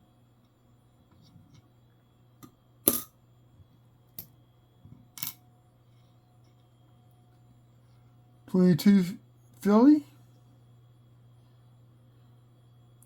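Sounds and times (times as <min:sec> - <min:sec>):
coins clicking on a desk: 0:02.9 - 0:03.1, 0:05.2 - 0:05.4.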